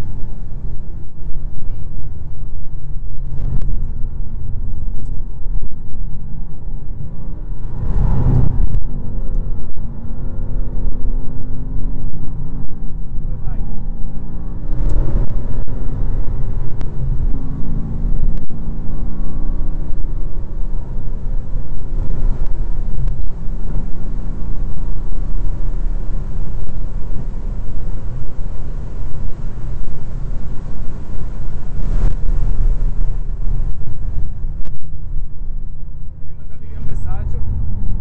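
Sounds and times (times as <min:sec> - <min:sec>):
wind and road rumble: 0:00.0 - 0:38.0
racing car engine shifting up: 0:07.4 - 0:35.7.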